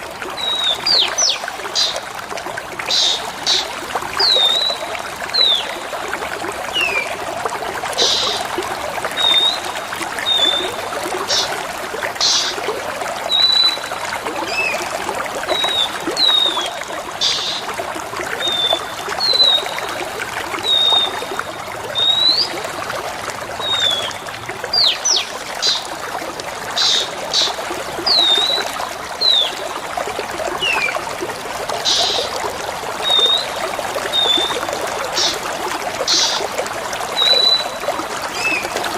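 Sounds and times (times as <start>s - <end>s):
trickling water: 0.0s - 38.9s
bird whistling calls: 9.2s - 9.6s, 10.2s - 11.5s, 18.4s - 19.8s, 22.0s - 22.6s, 33.0s - 33.6s, 37.2s - 37.8s.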